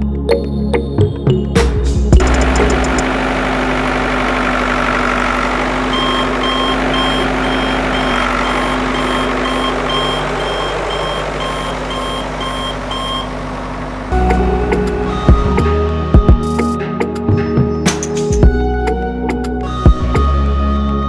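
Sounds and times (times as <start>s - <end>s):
reversing alarm beeping: 2.2s - 15.6s
vehicle engine running: 2.2s - 15.8s.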